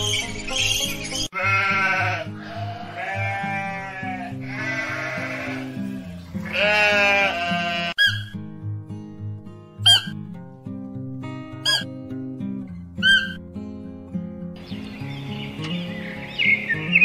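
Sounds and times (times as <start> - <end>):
background music: 0.0 - 17.0
sheep bleating: 1.3 - 8.2.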